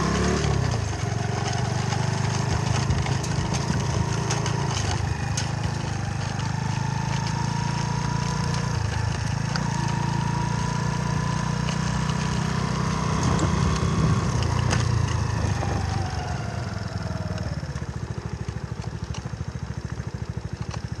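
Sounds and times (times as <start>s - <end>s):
motorcycle engine revving and idling: 0.0s - 21.0s.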